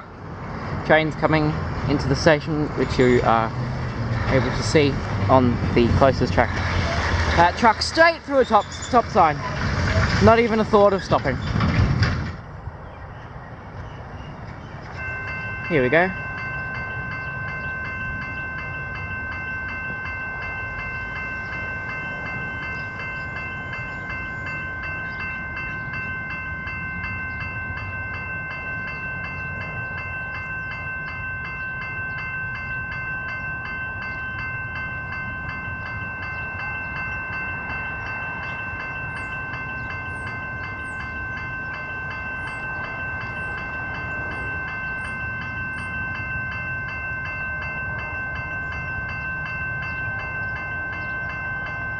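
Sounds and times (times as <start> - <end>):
train rumbling: 0.0 - 51.9
level crossing bell ringing: 15.0 - 51.9.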